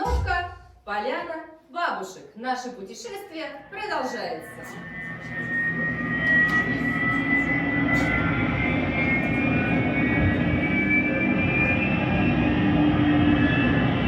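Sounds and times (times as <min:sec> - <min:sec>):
high rising whine: 0:03.6 - 0:14.0
jet engines roaring: 0:04.3 - 0:14.0.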